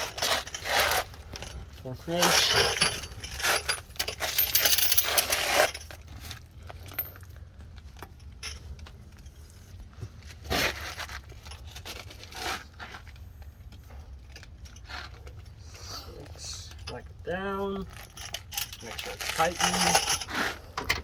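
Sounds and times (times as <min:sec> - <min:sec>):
metal scrape: 0:02.1 - 0:05.9, 0:18.8 - 0:21.0
wrench and socket clinking: 0:17.9 - 0:21.0.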